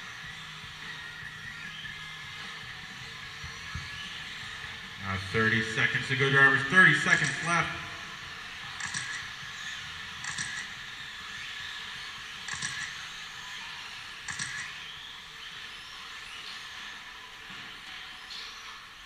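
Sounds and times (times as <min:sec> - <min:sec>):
rising motor whines: 0:00.0 - 0:05.6.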